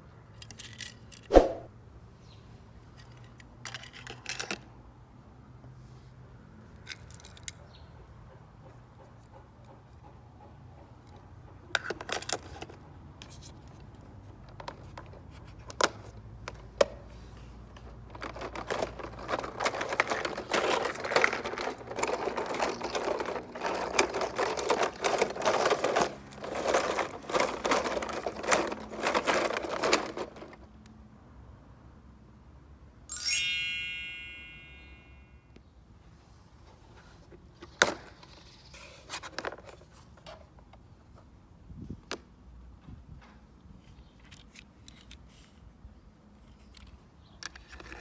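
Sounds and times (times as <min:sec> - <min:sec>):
toy cars clicking: 0:00.3 - 0:01.3, 0:03.0 - 0:04.7, 0:06.8 - 0:07.6, 0:11.7 - 0:17.0, 0:17.6 - 0:30.8
toy cars rattling and clattering: 0:00.3 - 0:01.3, 0:03.0 - 0:04.7, 0:06.8 - 0:07.6, 0:11.7 - 0:16.9, 0:17.6 - 0:30.8, 0:37.6 - 0:40.4, 0:46.4 - 0:48.0.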